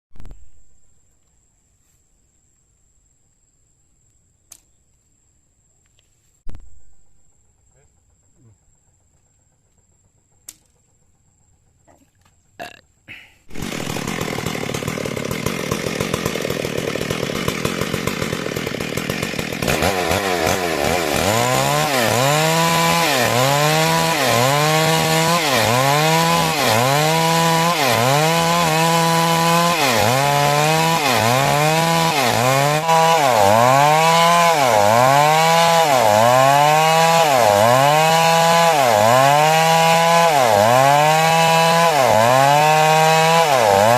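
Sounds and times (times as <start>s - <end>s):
chainsaw cutting timber: 13.5s - 43.9s.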